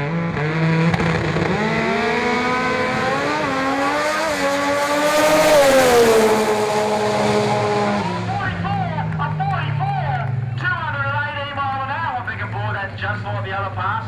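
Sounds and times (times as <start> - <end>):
drag car accelerating hard: 0.0 - 10.9.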